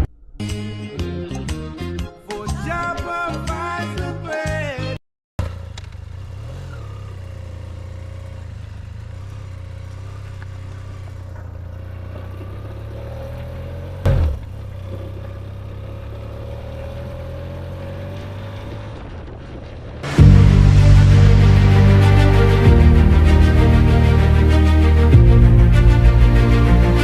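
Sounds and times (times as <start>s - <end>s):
music: 0.0s - 5.0s, 20.0s - 27.0s
motorcycle engine running: 5.4s - 22.0s.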